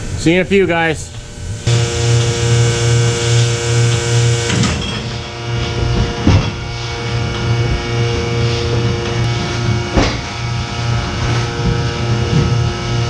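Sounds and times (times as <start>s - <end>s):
milking machinery humming: 0.0s - 13.0s
knocks and clanks: 3.4s - 8.0s.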